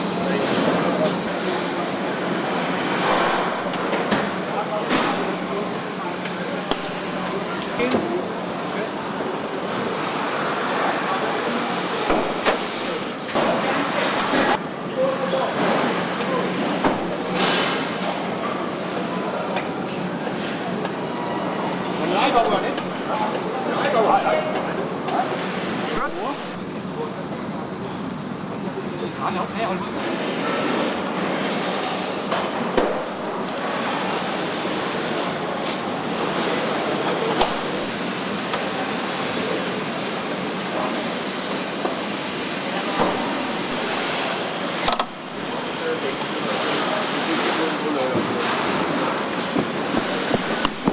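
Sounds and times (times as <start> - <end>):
factory din: 0.0 - 8.4, 9.9 - 50.9
sharp knocks: 49.6 - 50.9.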